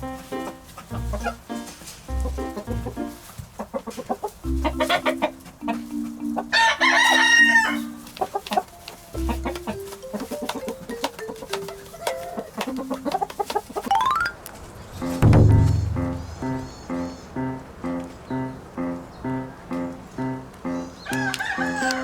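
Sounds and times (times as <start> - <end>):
music with bass beat: 4.5 - 5.4, 9.2 - 9.8, 15.2 - 16.6
rooster crowing: 6.4 - 9.8, 21.0 - 22.0.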